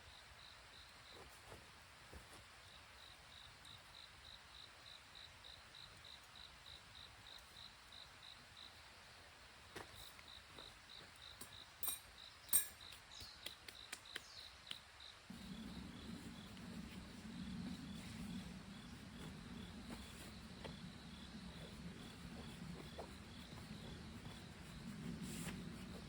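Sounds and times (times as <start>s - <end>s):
cricket chirping: 0.0s - 1.6s, 2.3s - 26.0s
sharp clicks and snaps: 12.9s - 14.9s
low steady hum: 15.2s - 26.0s.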